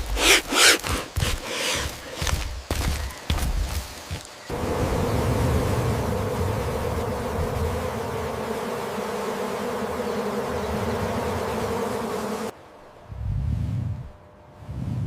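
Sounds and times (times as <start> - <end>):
insect buzzing: 0.0 - 12.6.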